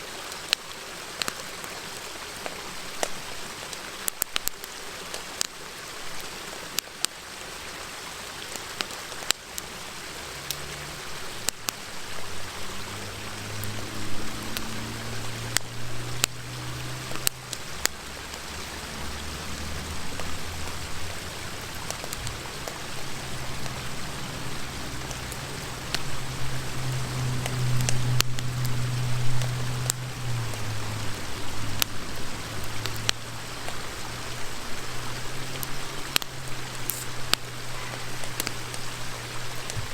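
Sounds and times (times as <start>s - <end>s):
river rushing: 0.0s - 39.9s
campfire crackling and popping: 0.2s - 39.9s
low drone: 12.1s - 39.9s.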